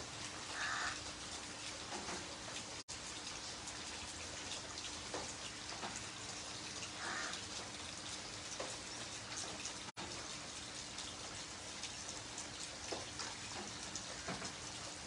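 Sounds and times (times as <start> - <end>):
rain on wet pavement: 0.0 - 15.0.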